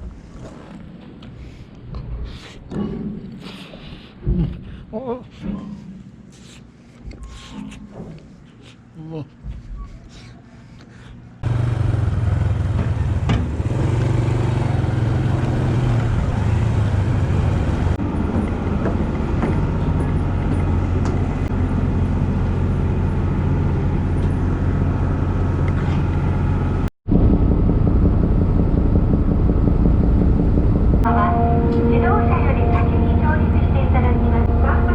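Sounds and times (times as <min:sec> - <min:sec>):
motorcycle engine running: 0:11.4 - 0:31.1
road noise: 0:11.4 - 0:34.9.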